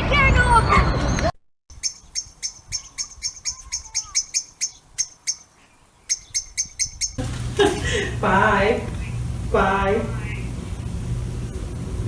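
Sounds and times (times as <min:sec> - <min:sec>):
small bird chirping: 0:01.7 - 0:07.2.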